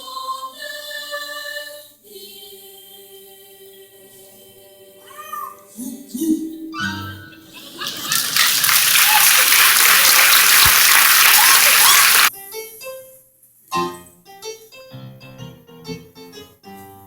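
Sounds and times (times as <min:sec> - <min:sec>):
audience applauding: 0:07.8 - 0:12.3.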